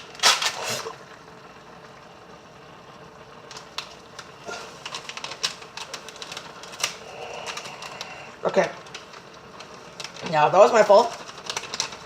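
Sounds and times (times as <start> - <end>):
sharp clicks and crackles: 0.0 - 0.9, 3.4 - 12.0
faint hum: 0.0 - 12.0.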